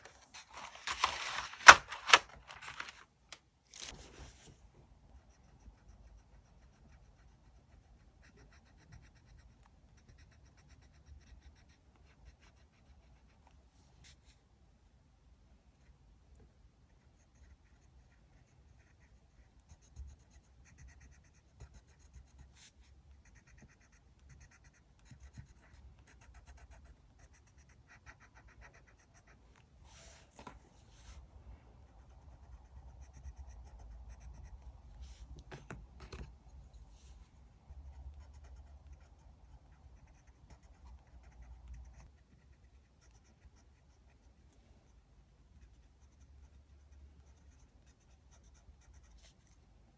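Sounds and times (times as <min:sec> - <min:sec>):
paper rustling: 0:00.0 - 0:03.1, 0:03.7 - 0:04.6, 0:29.9 - 0:31.2
pen scratching on paper: 0:17.0 - 0:31.2, 0:37.7 - 0:44.2.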